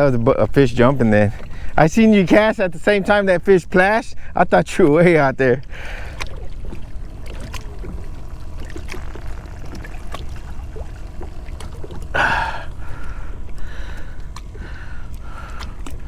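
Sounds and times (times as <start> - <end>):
water lapping and trickling: 1.0 - 1.8, 5.6 - 16.0.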